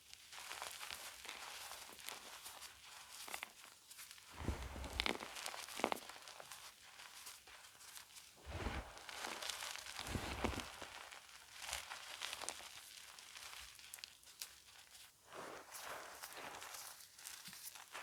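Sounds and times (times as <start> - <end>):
chalk crunching and crackling: 4.1 - 18.0.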